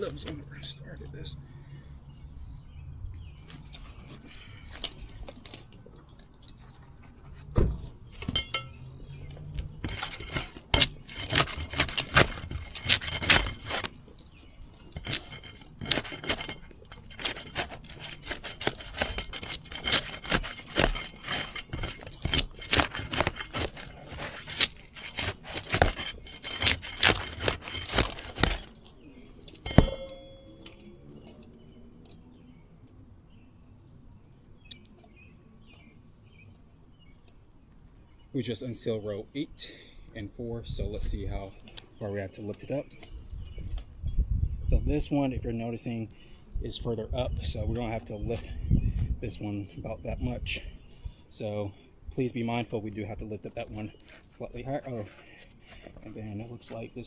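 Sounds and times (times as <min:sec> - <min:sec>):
shingles crackling being pried: 0:09.6 - 0:30.6
sharp metallic knock: 0:29.6 - 0:30.8.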